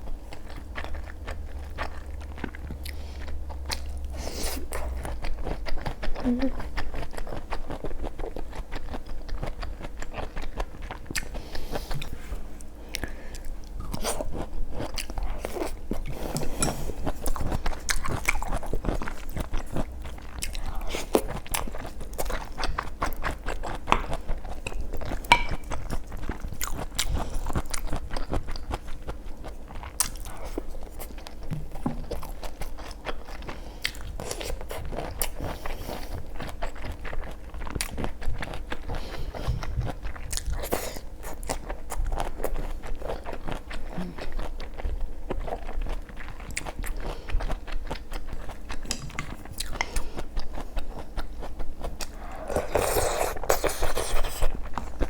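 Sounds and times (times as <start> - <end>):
crunchy chewing: 0.0 - 55.0.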